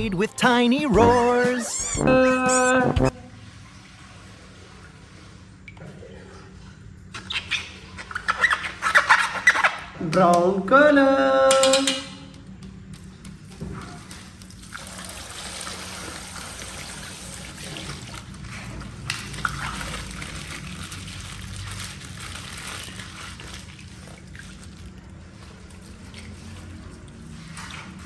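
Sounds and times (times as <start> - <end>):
water sloshing and trickling: 3.1 - 10.0, 12.4 - 28.0
plastic bag squeezed: 19.2 - 25.0.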